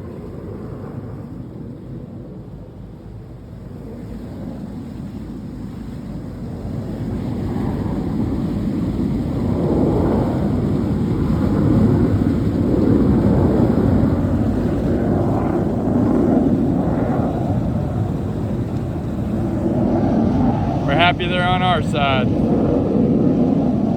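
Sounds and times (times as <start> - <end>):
jet aircraft rumble: 0.0 - 23.9
boat engine running: 15.6 - 23.8.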